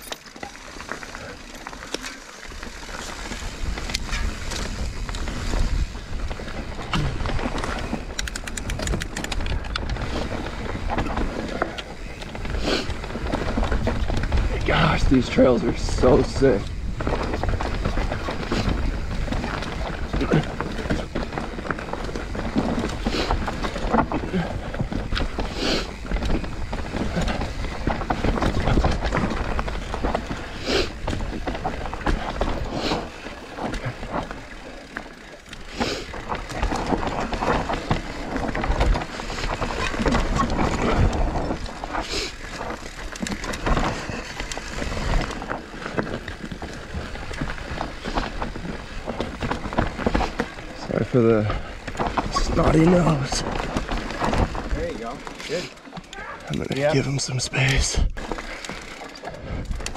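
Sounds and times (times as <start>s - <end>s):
bike rattling over bumps: 0.0s - 59.9s
tyres skidding over dirt: 0.0s - 59.9s
wind buffeting microphone: 2.9s - 34.4s.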